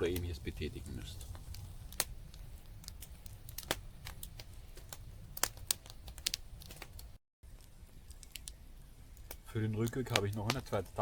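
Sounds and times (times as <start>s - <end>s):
wind rumble on microphone: 0.0s - 7.1s
campfire crackling and popping: 0.0s - 11.0s.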